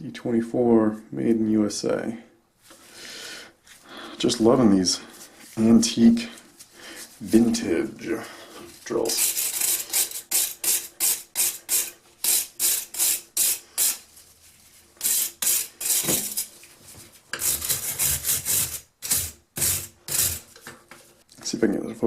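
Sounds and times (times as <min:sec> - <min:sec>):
scrubbing on rusty metal: 0:17.3 - 0:20.6.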